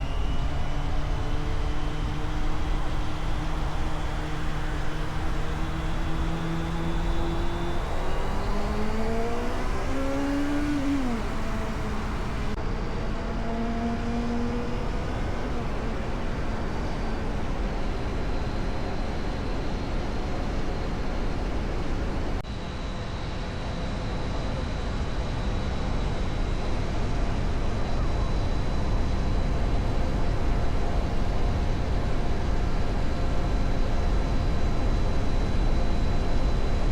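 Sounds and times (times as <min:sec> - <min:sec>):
motorcycle engine running: 0:00.4 - 0:12.6.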